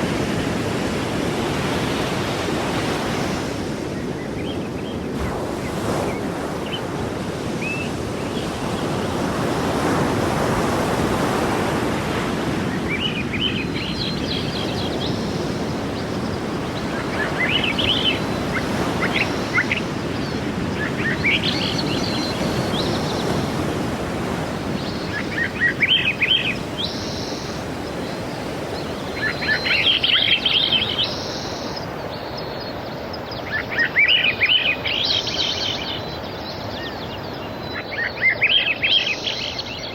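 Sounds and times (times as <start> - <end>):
sea waves washing in: 0.0 - 36.7
small birds chirping: 12.8 - 39.9.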